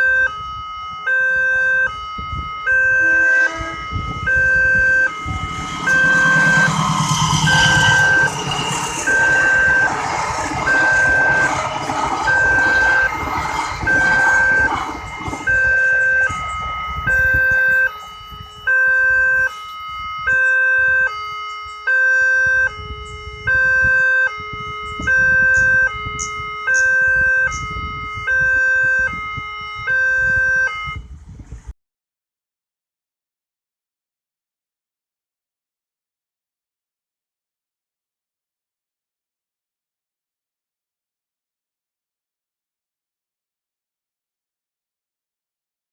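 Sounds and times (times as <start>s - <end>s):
level-crossing warning beeps: 0.0s - 31.2s
passing train rumble: 2.4s - 19.4s.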